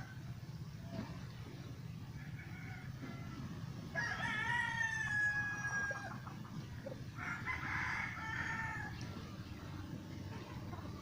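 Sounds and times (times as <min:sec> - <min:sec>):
rooster crowing: 0:02.2 - 0:06.2, 0:07.2 - 0:09.0.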